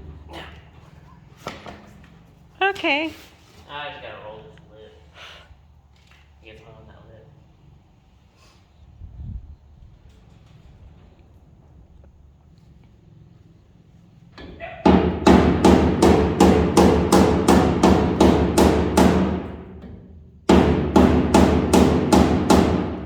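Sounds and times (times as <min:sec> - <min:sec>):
hammer striking sheet metal: 0:14.9 - 0:23.0.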